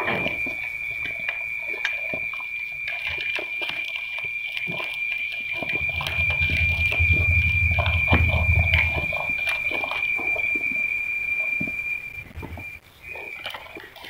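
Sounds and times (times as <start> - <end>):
steady high whistle: 0.0 - 13.9
fire crackling and popping: 4.2 - 13.7
low rumble: 5.7 - 12.8.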